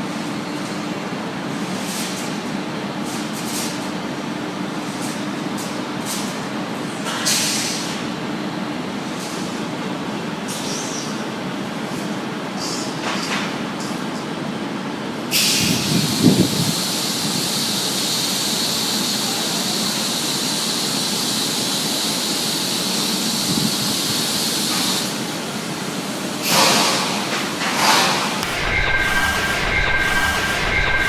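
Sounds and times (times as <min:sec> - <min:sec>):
factory machinery humming: 0:28.3 - 0:31.0
machinery clanks: 0:28.4 - 0:31.0.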